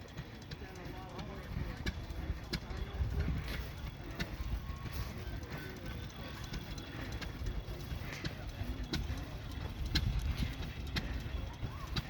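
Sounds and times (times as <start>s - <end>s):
distant voices: 0.0s - 12.0s
faint music: 0.0s - 12.0s
scattered clicks: 0.0s - 12.0s.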